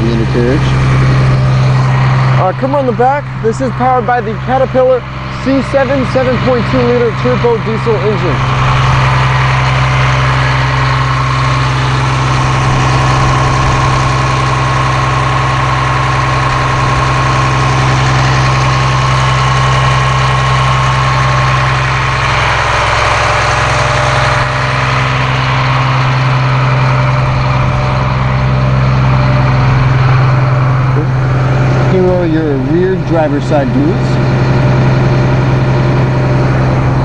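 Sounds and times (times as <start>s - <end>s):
high steady tone: 0.0s - 21.4s
diesel bus engine idling: 0.0s - 37.0s.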